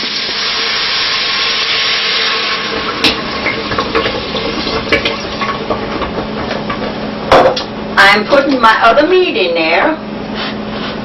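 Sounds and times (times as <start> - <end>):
food sizzling in hot oil: 0.0 - 6.0.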